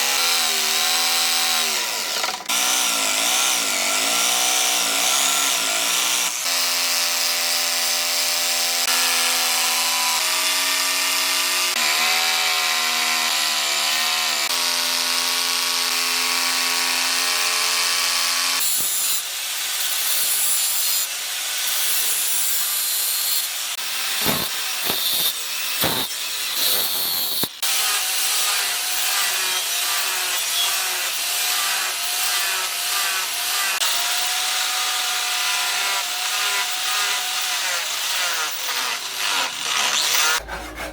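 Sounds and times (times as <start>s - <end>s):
power tool running: 0.0s - 19.2s, 23.7s - 40.9s
tool scraping material: 23.9s - 34.0s, 35.6s - 40.9s.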